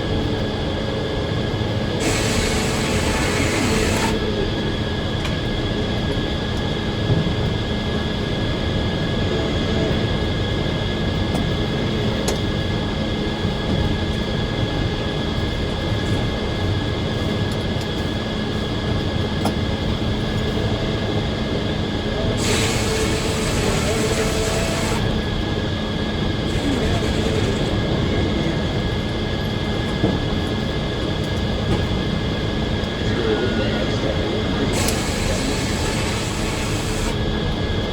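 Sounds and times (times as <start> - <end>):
sawmill machine drone: 0.1 - 5.4, 20.7 - 37.9
whining saw tones: 2.0 - 4.2, 22.4 - 25.2, 34.7 - 37.2.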